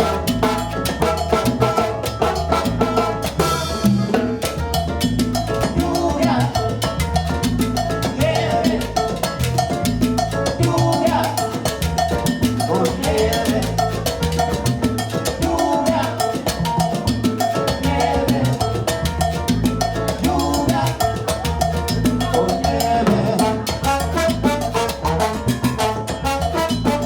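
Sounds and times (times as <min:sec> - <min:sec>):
salsa band playing: 0:00.0 - 0:27.0.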